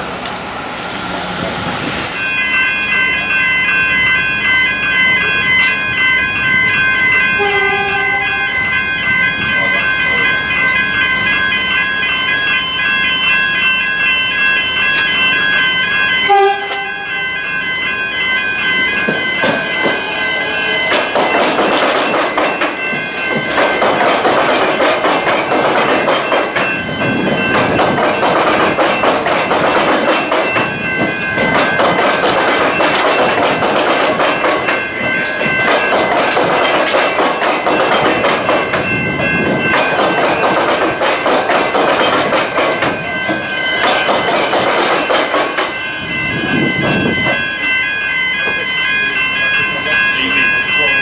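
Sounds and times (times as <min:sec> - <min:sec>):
electric train passing: 0:00.0 - 0:51.0
level crossing bells: 0:00.9 - 0:51.0
wheels clattering over rail joints: 0:18.3 - 0:46.0.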